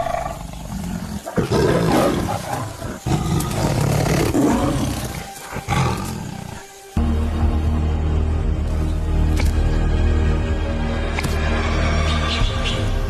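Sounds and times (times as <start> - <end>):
tiger roaring: 0.0 - 6.6.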